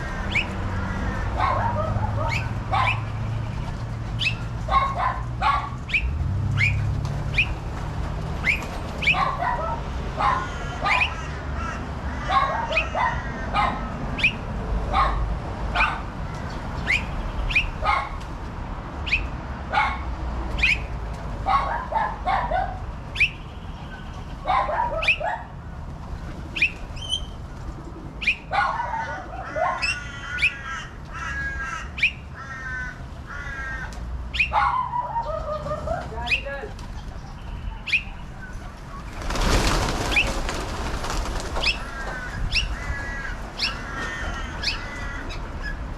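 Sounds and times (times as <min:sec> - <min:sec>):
birds harsh calls: 0:00.0 - 0:07.7, 0:08.3 - 0:15.2, 0:15.8 - 0:18.2, 0:26.4 - 0:45.9.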